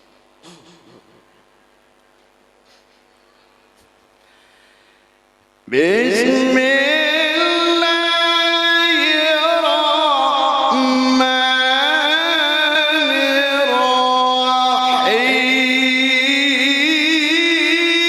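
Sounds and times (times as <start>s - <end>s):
man reciting melodically: 5.7s - 18.0s.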